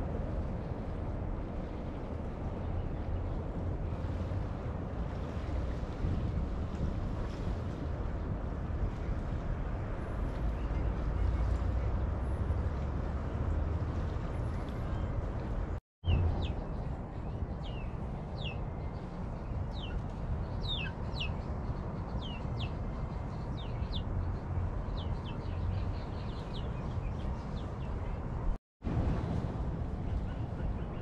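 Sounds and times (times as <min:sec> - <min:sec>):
outdoor background rumble: 0:00.0 - 0:20.3
bird chirping: 0:20.6 - 0:21.4.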